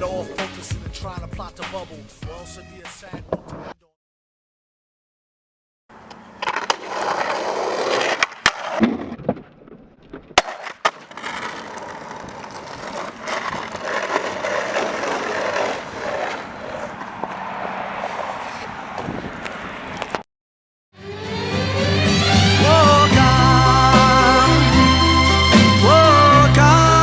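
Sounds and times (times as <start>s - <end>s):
skateboard wheels rolling on pavement: 5.9s - 20.2s
skateboard clacking on ground: 6.0s - 20.2s.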